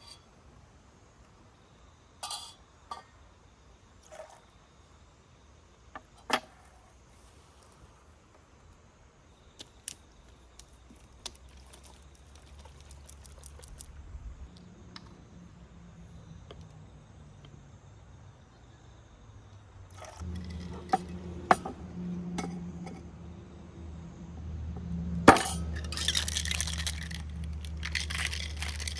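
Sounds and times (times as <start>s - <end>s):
low steady hum: 10.4s - 28.9s
objects clicking and tapping: 19.9s - 21.8s, 25.3s - 28.9s.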